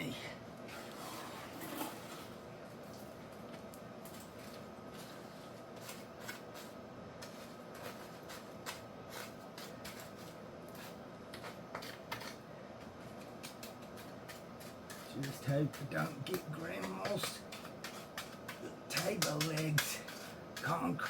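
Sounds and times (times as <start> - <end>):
faint steady hum: 0.0 - 21.0
hand tool scraping wet concrete: 4.4 - 12.4, 13.4 - 21.0.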